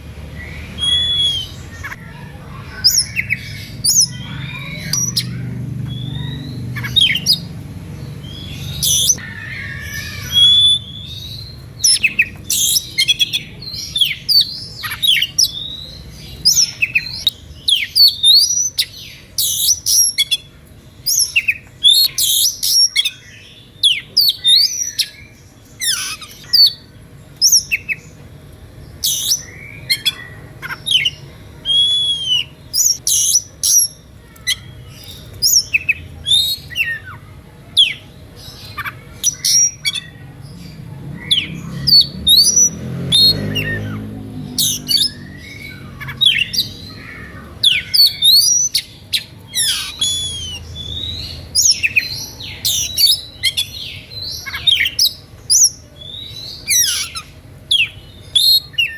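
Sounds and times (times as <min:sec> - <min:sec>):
bird singing whistles and chirps: 0:00.3 - 0:02.0, 0:30.9 - 0:37.1, 0:47.6 - 0:58.9.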